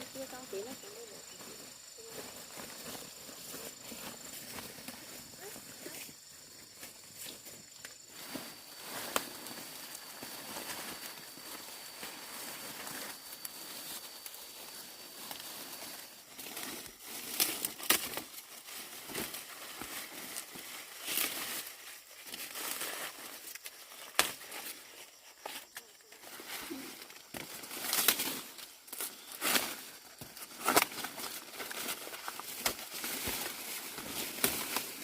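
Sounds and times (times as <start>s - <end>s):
dry corn leaves rustling: 0.0s - 35.0s
corn ears snapping off stalks: 17.2s - 18.4s, 23.5s - 24.7s, 27.2s - 35.0s.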